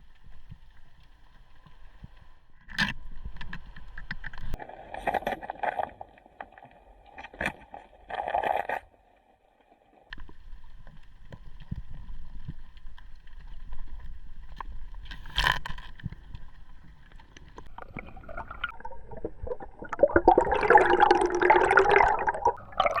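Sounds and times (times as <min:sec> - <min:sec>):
underwater scrapes and knocks: 0:00.0 - 0:08.8, 0:10.1 - 0:20.1
bubbling water rush: 0:17.6 - 0:23.0.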